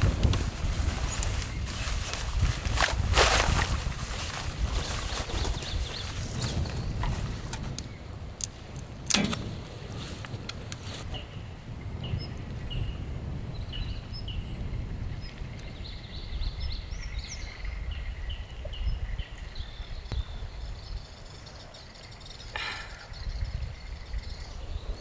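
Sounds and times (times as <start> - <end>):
rustling noise: 0.0 - 8.0, 8.8 - 11.2
small birds chirping: 3.8 - 8.1, 13.6 - 25.0.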